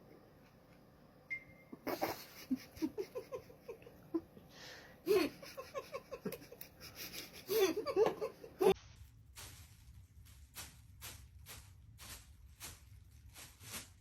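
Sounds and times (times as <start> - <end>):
person laughing: 1.8 - 4.4, 5.0 - 8.8.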